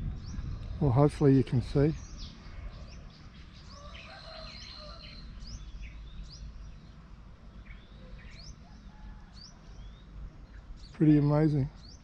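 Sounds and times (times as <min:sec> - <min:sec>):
steady low rumble: 0:00.0 - 0:03.8
birds chirping: 0:00.0 - 0:12.0.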